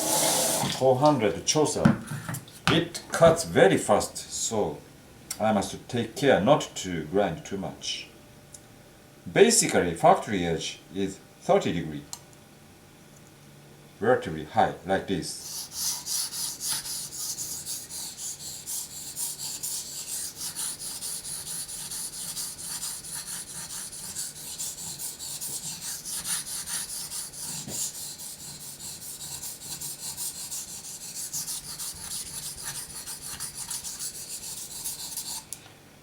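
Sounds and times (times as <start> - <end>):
knife scraping on a whetstone: 15.4 - 35.5.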